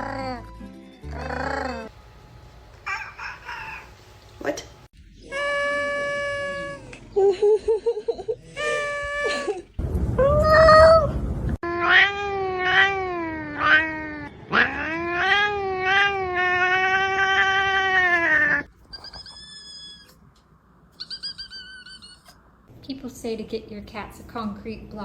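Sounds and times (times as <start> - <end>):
rough low rumble: 9.8 - 11.6
cat meowing: 11.6 - 20.2.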